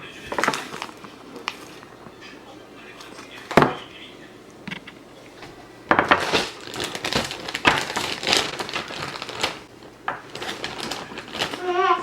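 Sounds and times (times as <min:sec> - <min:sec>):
crinkling and crunching: 0:00.1 - 0:02.1, 0:06.0 - 0:12.0.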